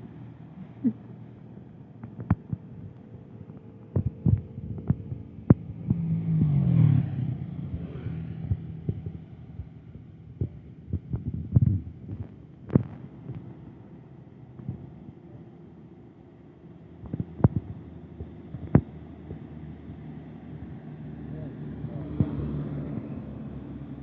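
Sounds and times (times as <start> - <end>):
diesel truck engine running: 0.0 - 24.0
sharp knocks and taps: 2.0 - 2.6.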